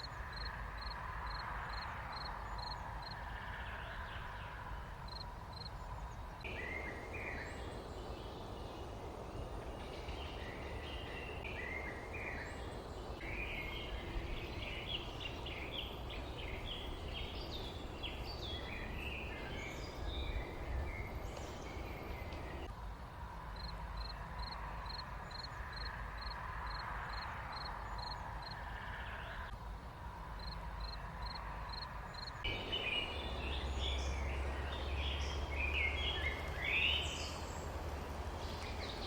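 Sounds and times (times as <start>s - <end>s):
small birds chirping: 0.0s - 22.7s, 30.4s - 39.0s
steady background hiss: 0.0s - 39.0s.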